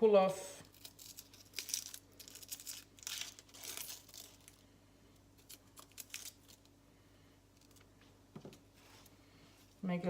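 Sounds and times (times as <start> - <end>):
shallot skin crinkling and tearing: 0.6 - 6.8.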